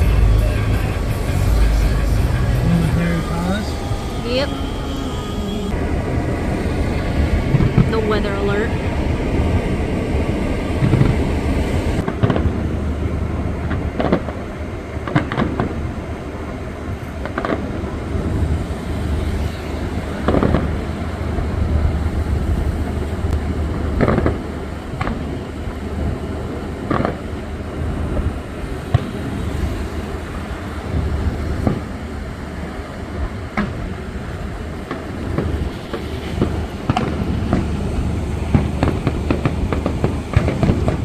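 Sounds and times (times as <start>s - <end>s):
low rumble: 0.0s - 16.0s
fireworks bangs: 0.0s - 41.0s.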